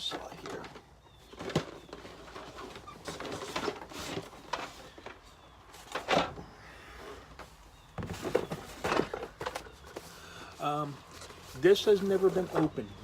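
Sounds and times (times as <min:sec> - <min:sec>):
cardboard boxes being handled: 0:07.3 - 0:13.0.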